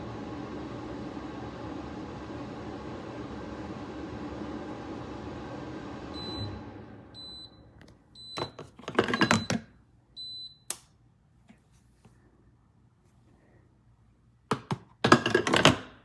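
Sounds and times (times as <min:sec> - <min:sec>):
appliance running: 0:00.0 - 0:10.4, 0:14.5 - 0:16.0.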